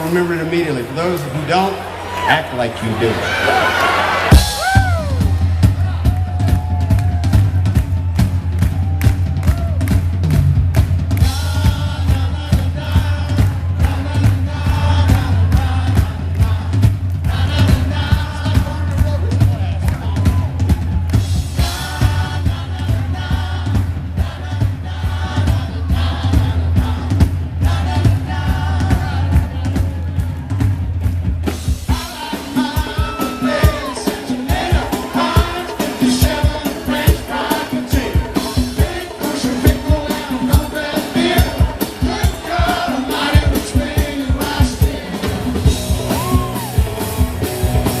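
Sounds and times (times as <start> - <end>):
live band music: 0.0 - 48.0
drums steady beat: 2.4 - 48.0
lead singer singing: 11.2 - 20.5, 21.5 - 30.2, 31.9 - 47.4
voices singing along: 11.2 - 20.5, 21.5 - 30.3, 31.9 - 47.5.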